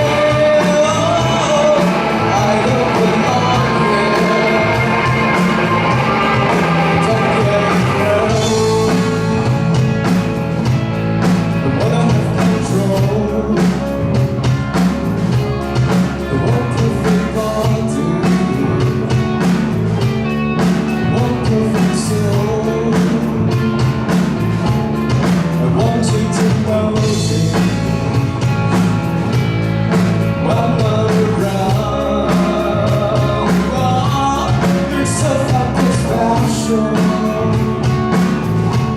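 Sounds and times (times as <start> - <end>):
person singing: 0.0 - 9.7, 11.6 - 14.3, 15.6 - 19.6, 20.9 - 24.0, 25.5 - 28.3, 30.3 - 38.9
live rock band playing: 0.0 - 38.9.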